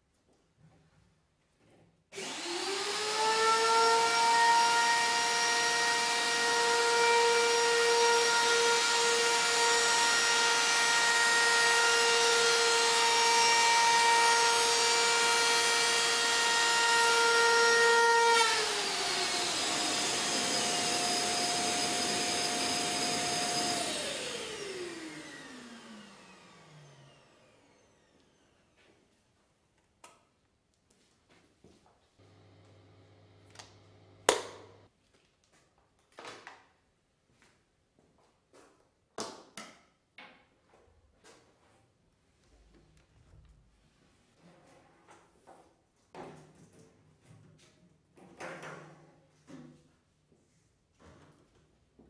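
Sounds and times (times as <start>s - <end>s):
vacuum cleaner motor whining: 2.2s - 6.6s, 8.4s - 28.8s, 32.2s - 34.2s.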